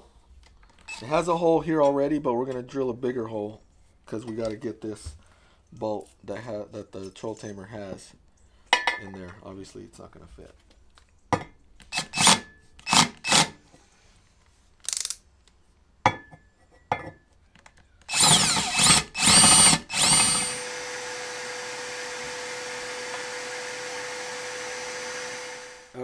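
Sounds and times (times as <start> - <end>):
power drill running: 11.9 - 13.5, 18.1 - 26.0
drill clicks: 11.9 - 13.6, 14.8 - 15.2, 18.1 - 26.0.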